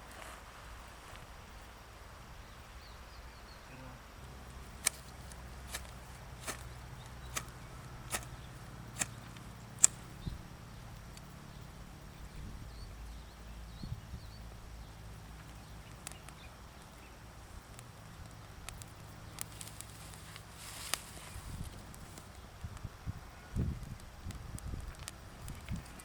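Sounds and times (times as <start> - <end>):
faint ticks: 15.4 - 22.9.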